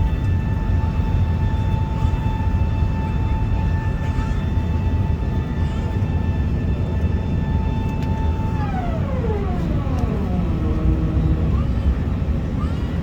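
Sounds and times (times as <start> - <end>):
jet engine roar and whine: 0.0 - 13.0.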